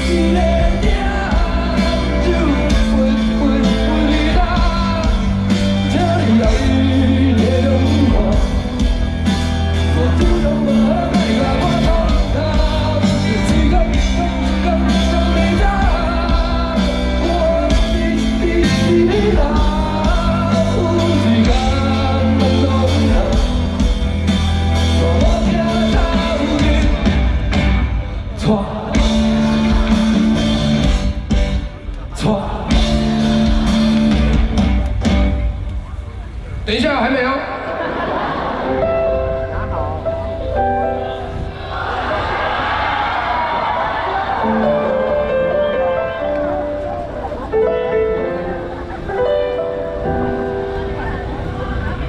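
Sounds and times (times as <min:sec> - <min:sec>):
person singing: 0:00.0 - 0:27.5, 0:28.2 - 0:30.9
live rock band: 0:00.0 - 0:36.9, 0:37.6 - 0:52.0.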